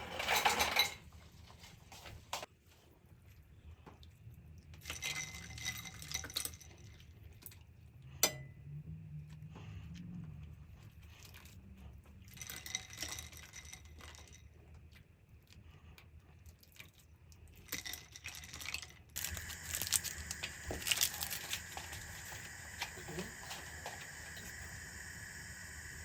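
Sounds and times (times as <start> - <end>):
utensils clicking and clinking: 0.0 - 1.1, 17.7 - 26.0
steady cooking hiss: 19.2 - 26.0.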